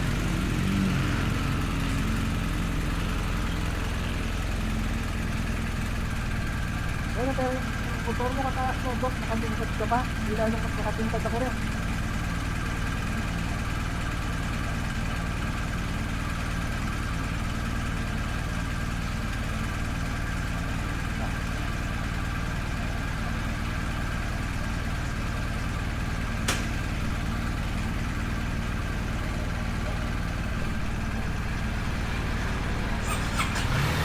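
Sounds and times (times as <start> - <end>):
engine humming steadily: 0.0 - 34.0
sharp click: 26.4 - 26.9.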